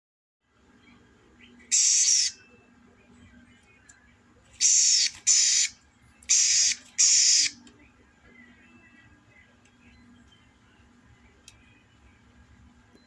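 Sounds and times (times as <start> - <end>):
songbird harsh hissing song: 1.7 - 2.4, 4.6 - 5.7, 6.3 - 7.6.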